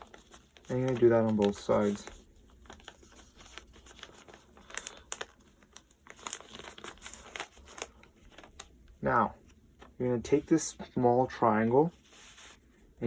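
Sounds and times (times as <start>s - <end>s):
paper rustling and crinkling: 0.0s - 8.8s, 11.6s - 12.8s.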